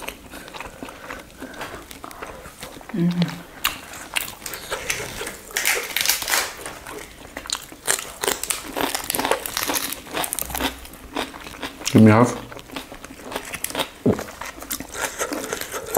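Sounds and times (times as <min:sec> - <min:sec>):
crisp chewing crunches: 0:00.0 - 0:15.9
lettuce leaves crinkling: 0:04.0 - 0:10.7.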